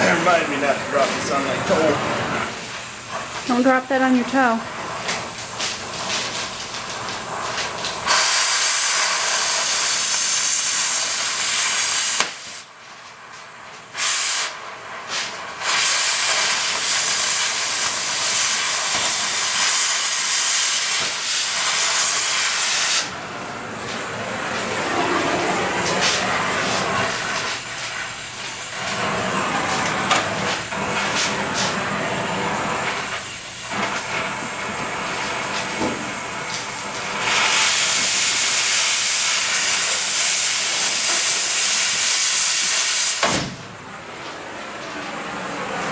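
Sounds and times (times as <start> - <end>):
loud hissing of air or gas: 7.2 - 12.7, 13.9 - 43.6.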